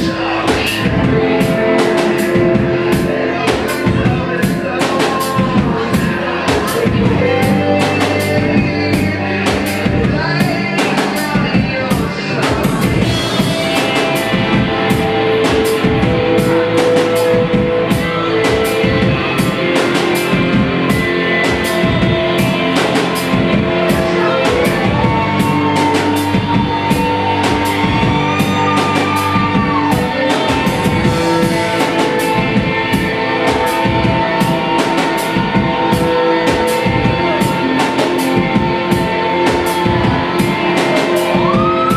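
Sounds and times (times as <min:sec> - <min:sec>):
drum kit beat: 0:00.0 - 0:41.9
electric guitars sustained notes: 0:00.0 - 0:41.9.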